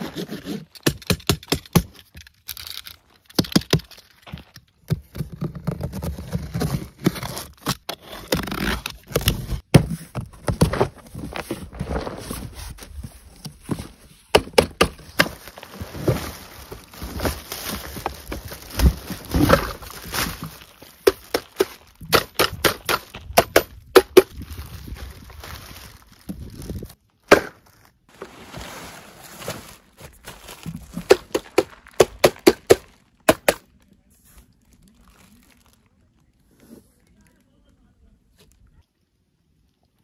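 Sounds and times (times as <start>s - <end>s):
plastic bag crinkling: 15.2s - 22.1s, 24.3s - 27.0s, 28.1s - 32.2s, 34.5s - 36.4s.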